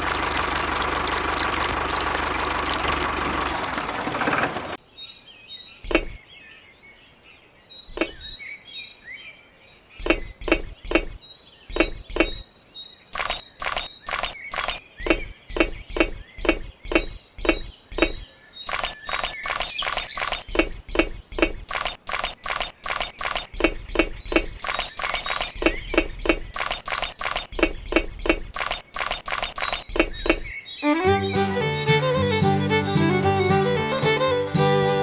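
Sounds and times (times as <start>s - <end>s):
clacking knocks: 5.9s - 6.2s, 10.0s - 12.4s, 13.2s - 30.5s
fiddle and guitar music: 30.8s - 35.0s.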